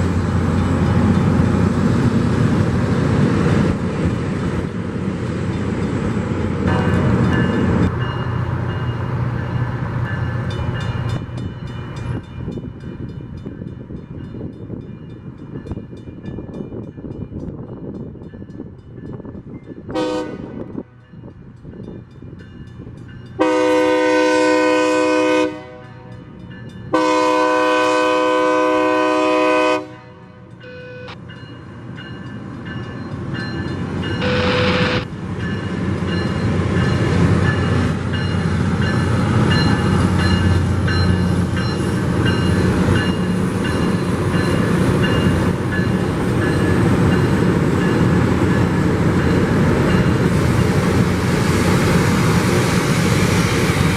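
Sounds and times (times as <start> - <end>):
grinding train rumble: 0.0 - 53.9
train air horn blasts: 6.7 - 7.3, 19.9 - 21.0, 23.4 - 26.2, 26.9 - 31.2, 34.2 - 35.1.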